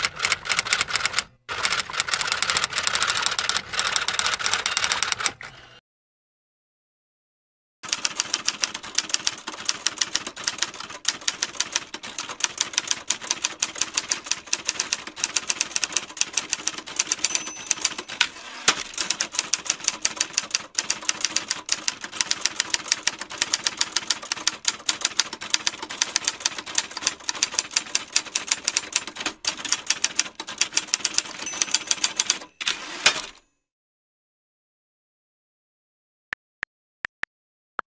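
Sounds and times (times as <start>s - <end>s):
typewriter keys clattering: 8.2s - 33.4s.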